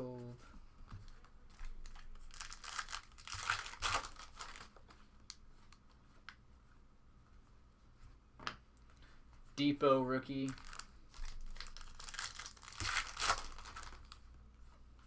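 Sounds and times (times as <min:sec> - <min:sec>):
foil wrapper crinkling and tearing: 0:01.8 - 0:04.8, 0:10.5 - 0:14.2.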